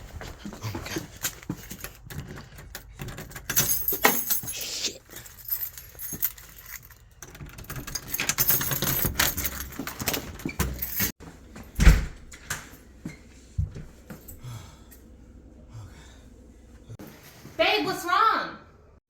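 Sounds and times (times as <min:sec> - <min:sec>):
keys jangling: 0:01.1 - 0:11.1.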